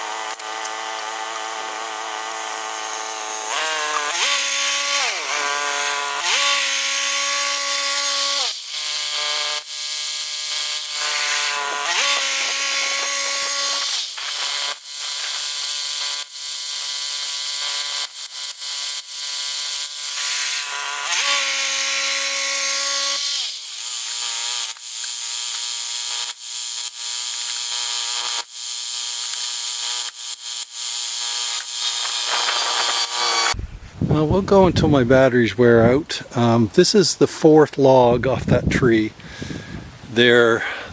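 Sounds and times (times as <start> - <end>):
sawmill motor running: 0.0 - 33.6
saw blade hissing in wood: 31.5 - 33.6.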